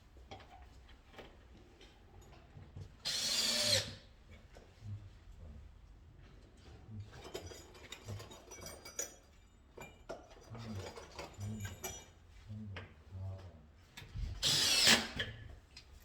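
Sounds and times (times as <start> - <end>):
hand tools and metal parts clinking: 6.4 - 12.4.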